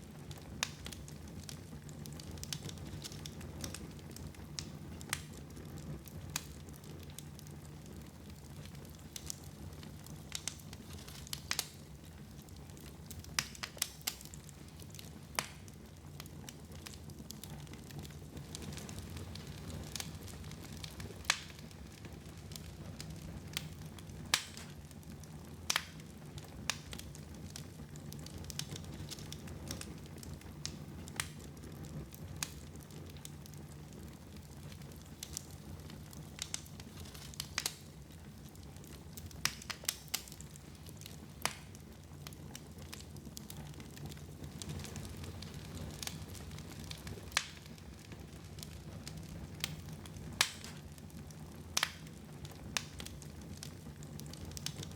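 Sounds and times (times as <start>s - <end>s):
fire crackling pops: 0.0s - 54.9s
low rumble of burning: 0.0s - 54.9s.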